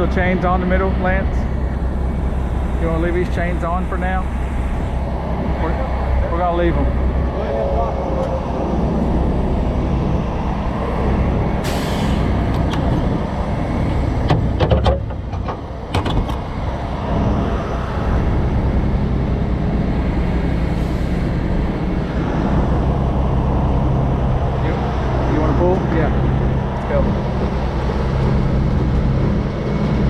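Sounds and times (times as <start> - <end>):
diesel truck engine running: 0.0 - 30.0
air hiss: 11.6 - 12.5
sharp knocks: 14.2 - 16.4.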